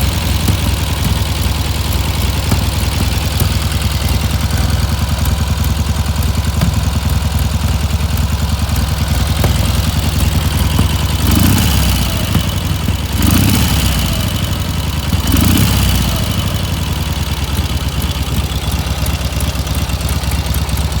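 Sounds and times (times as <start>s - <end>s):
motorcycle engine idling and revving: 0.0s - 21.0s.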